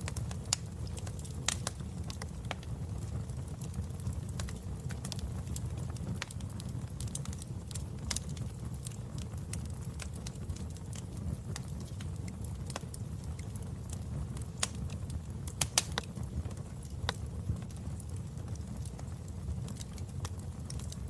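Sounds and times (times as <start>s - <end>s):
fire crackling and popping: 0.0s - 21.0s
wood fire rumbling: 0.0s - 21.0s.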